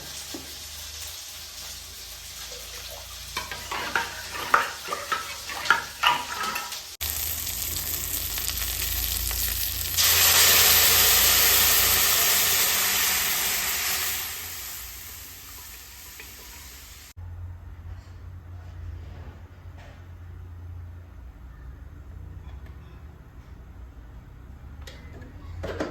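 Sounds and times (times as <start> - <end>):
food sizzling in a pan: 0.0 - 17.2
utensil stirring and scraping: 3.4 - 6.8.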